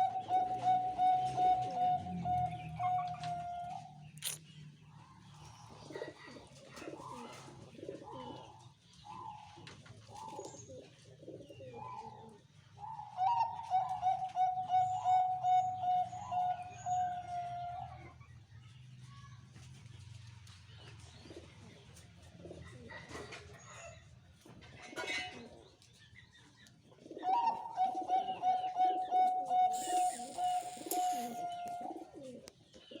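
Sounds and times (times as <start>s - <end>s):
dove cooing: 0.0s - 4.0s, 5.8s - 8.6s, 10.1s - 17.6s, 27.0s - 33.0s
small bird chirping: 4.0s - 4.7s, 29.7s - 33.0s
short hiss: 29.7s - 31.5s.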